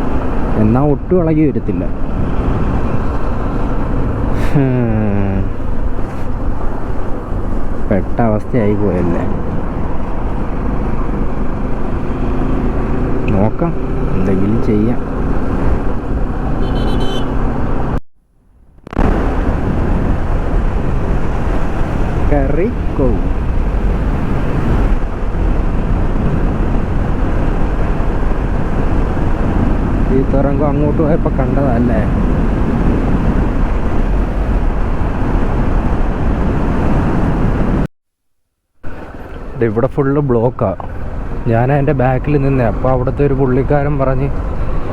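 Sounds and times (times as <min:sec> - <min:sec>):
vehicle road rumble: 0:00.0 - 0:37.9, 0:38.8 - 0:44.9
wind: 0:00.0 - 0:37.9, 0:38.5 - 0:44.9
horn toot: 0:16.4 - 0:17.6.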